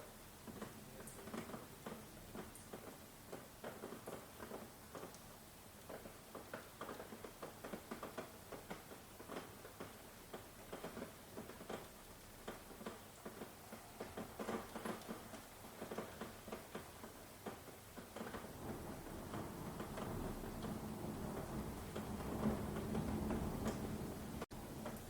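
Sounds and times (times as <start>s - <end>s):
rain falling: 0.0s - 25.0s
raindrops tapping: 0.2s - 25.0s.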